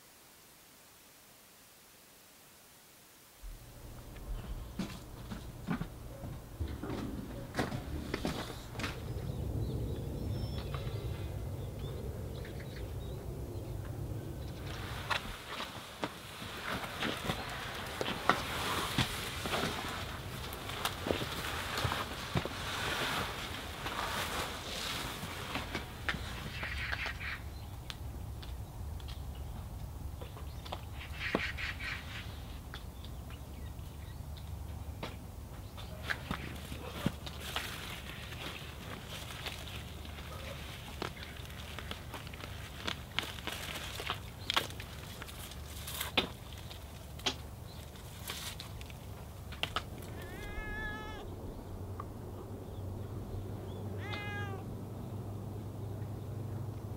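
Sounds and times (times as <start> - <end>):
sharp clicks and crackles: 39.2 - 50.2
cat meowing: 50.0 - 51.3, 53.9 - 54.7.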